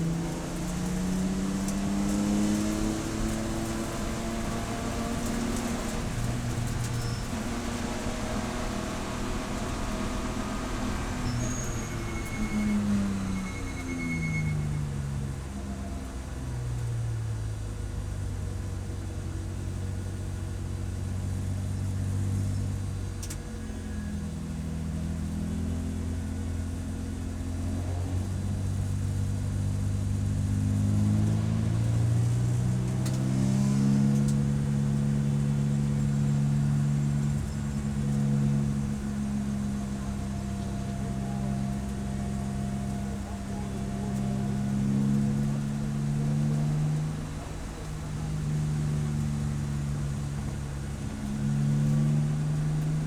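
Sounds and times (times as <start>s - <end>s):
race car engine revving: 30.0s - 53.0s.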